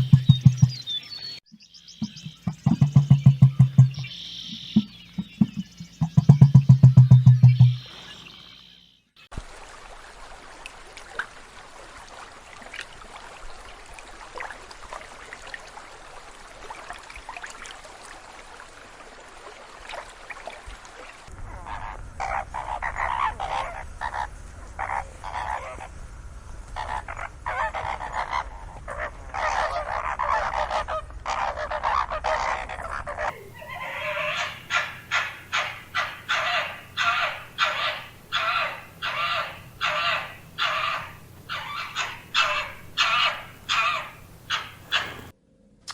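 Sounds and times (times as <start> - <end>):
loud repeated bird calls: 0.0 - 9.0, 29.4 - 45.4
animal chorus: 21.4 - 25.9, 26.7 - 45.4.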